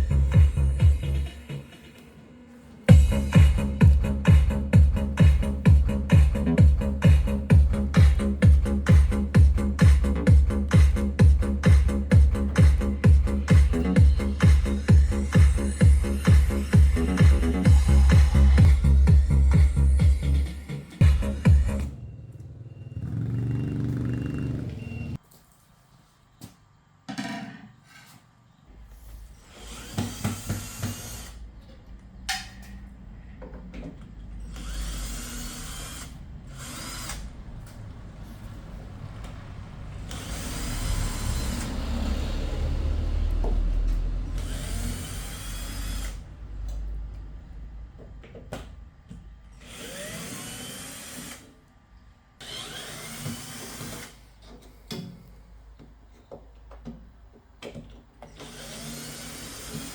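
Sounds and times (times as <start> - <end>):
electric drill-driver running: 29.5 - 31.4, 34.5 - 37.3, 40.1 - 41.8, 44.2 - 46.2, 49.6 - 51.5, 52.4 - 54.2, 58.4 - 59.9.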